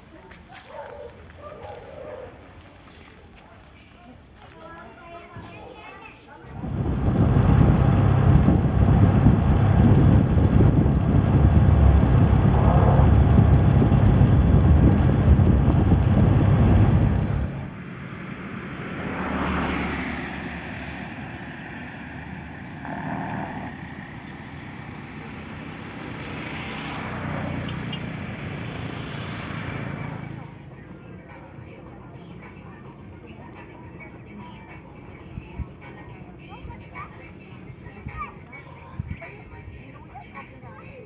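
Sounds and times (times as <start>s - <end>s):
vehicle road noise: 6.2s - 40.6s
wind buffeting microphone: 6.4s - 17.8s.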